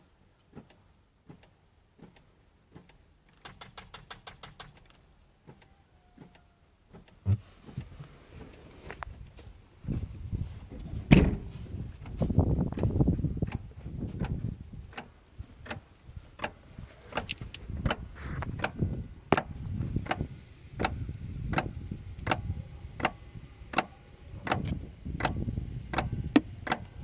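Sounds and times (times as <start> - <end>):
low thud: 10.7 - 12.8.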